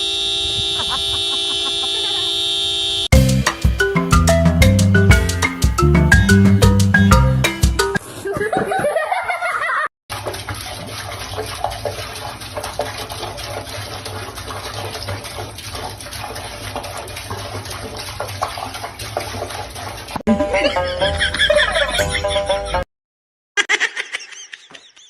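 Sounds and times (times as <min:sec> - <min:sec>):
running water rushing: 0:10.1 - 0:20.2.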